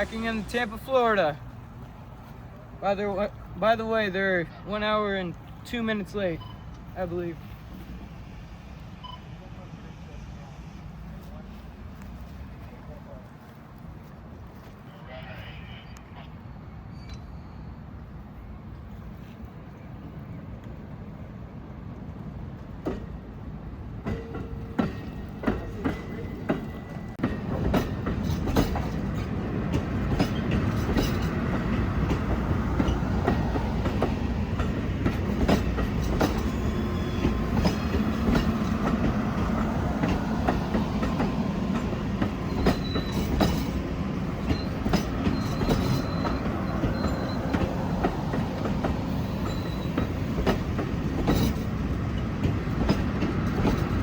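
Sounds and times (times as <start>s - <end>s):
train rolling rumble: 0.0s - 54.0s
high wheel squeal: 14.9s - 17.9s, 35.9s - 37.9s, 42.4s - 48.0s, 49.0s - 50.3s
train wheels clicking over rail joints: 24.0s - 54.0s.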